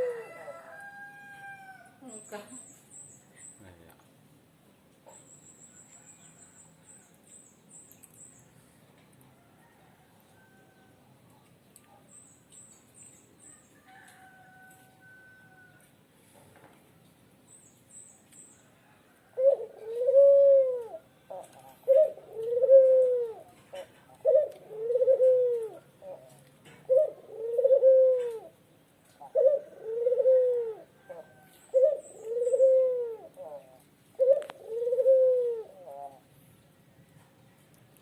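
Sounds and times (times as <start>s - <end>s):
dove cooing: 0.0s - 0.6s, 19.3s - 28.6s, 29.2s - 36.3s.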